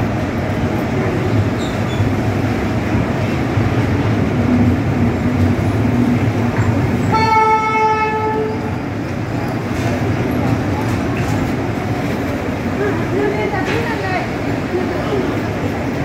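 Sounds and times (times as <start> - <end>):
train wagons rolling over rails: 0.0 - 16.0
train horn: 7.1 - 8.8.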